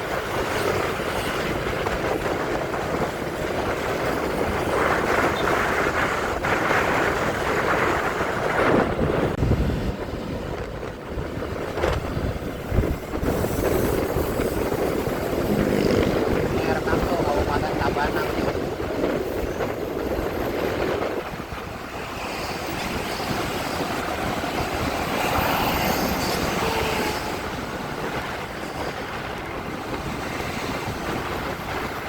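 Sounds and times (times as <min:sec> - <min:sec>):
road and wind rush: 0:00.0 - 0:32.0
wind gusts buffeting microphone: 0:00.0 - 0:32.0
motorcycle engine: 0:15.2 - 0:16.5.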